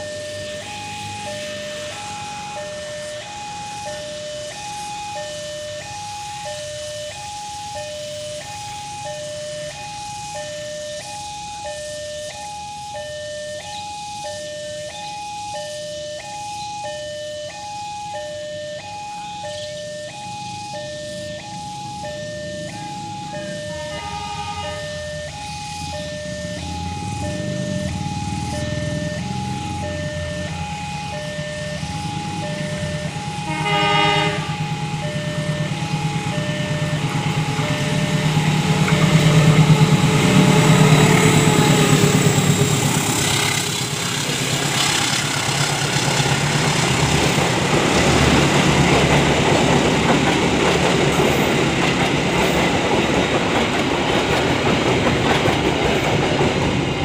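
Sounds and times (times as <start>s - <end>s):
level crossing warning chime: 0.0s - 44.0s
diesel locomotive passing: 0.0s - 57.0s
locomotive horn blast: 22.6s - 48.9s
train wheels clattering on rails: 35.9s - 57.0s.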